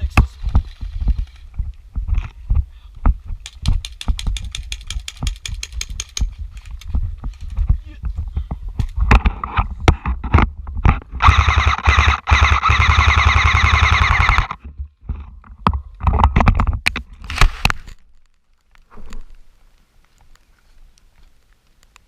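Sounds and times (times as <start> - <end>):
airsoft gun automatic fire: 11.2 - 14.6.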